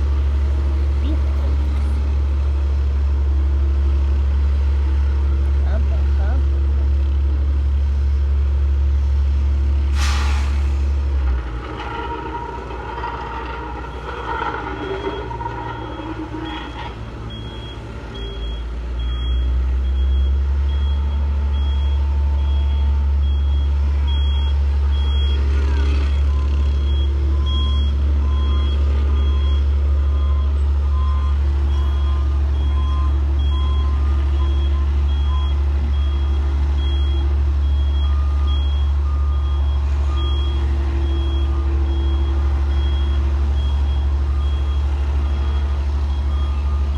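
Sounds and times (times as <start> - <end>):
diesel engine rumbling: 0.0 - 46.9
lower-pitched reversing alarm beeps: 14.6 - 25.4, 26.8 - 46.9.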